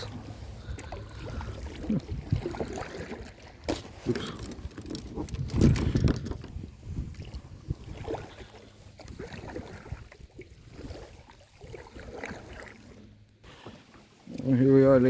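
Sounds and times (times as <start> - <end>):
water and wind noise: 0.0 - 15.0
paddle knocks and splashes: 0.1 - 14.0.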